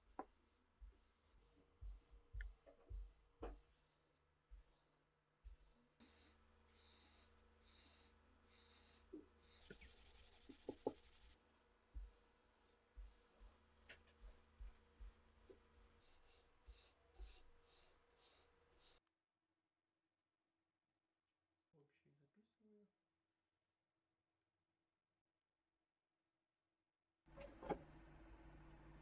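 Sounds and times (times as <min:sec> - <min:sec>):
scratchy rubbing strokes: 0:08.7 - 0:11.4.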